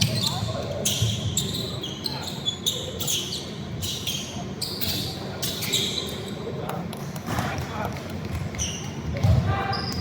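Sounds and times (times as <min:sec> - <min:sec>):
sneakers squeaking on floor: 0:00.0 - 0:06.5, 0:08.4 - 0:10.0
basketball bouncing: 0:08.3 - 0:09.6.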